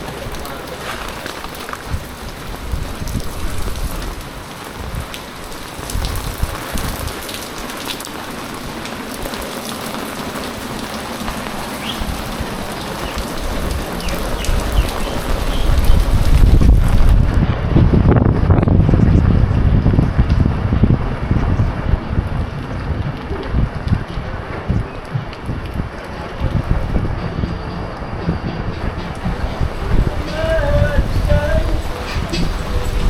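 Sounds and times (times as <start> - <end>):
heavy rain pouring: 0.0 - 33.0
low rumbling buffets: 0.0 - 33.0.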